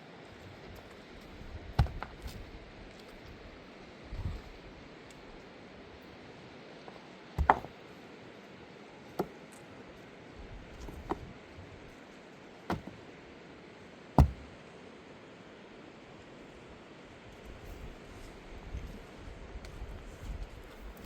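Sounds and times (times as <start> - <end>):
sharp knocks: 7.4 - 7.7, 12.7 - 13.0, 14.2 - 14.5.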